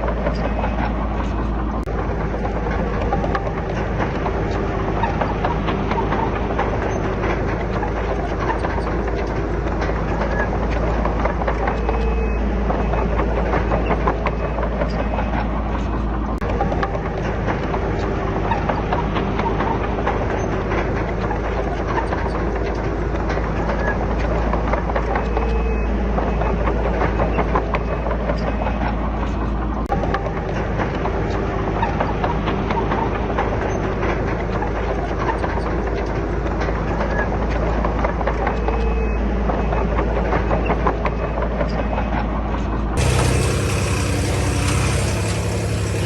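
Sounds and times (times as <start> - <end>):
steel tracks clanking: 0.0 - 40.9, 43.0 - 46.0
bulldozer diesel engine running: 43.0 - 46.0.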